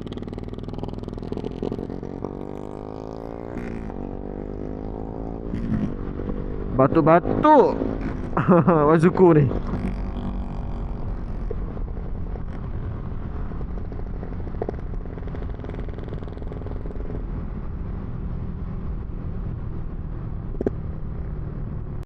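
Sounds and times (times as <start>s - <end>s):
motorcycle engine idling: 0.0s - 4.0s, 9.5s - 17.4s.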